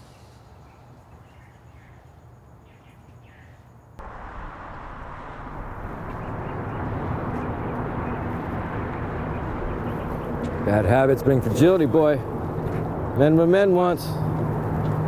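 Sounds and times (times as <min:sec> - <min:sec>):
loud rushing noise: 0:04.0 - 0:10.4
low hum: 0:04.0 - 0:10.6
soft bird chirps: 0:05.6 - 0:10.6.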